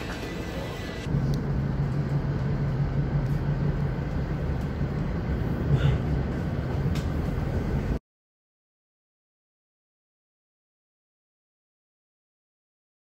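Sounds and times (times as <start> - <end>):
train rumbling inside carriage: 0.0 - 8.0.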